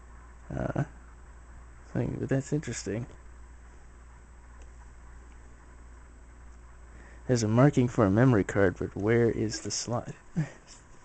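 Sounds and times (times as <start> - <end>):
low hum: 0.0 - 11.0
faint click: 4.6 - 5.4.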